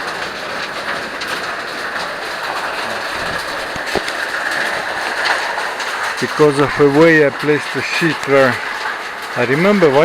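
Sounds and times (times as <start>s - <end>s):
waterfall rushing: 1.5s - 8.8s
light knocks: 2.3s - 5.5s.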